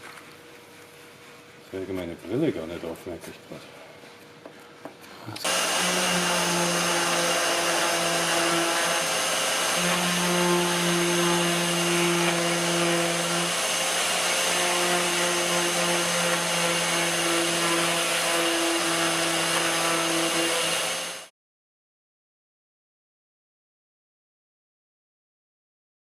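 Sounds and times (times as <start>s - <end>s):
small electric motor running: 5.4s - 21.3s.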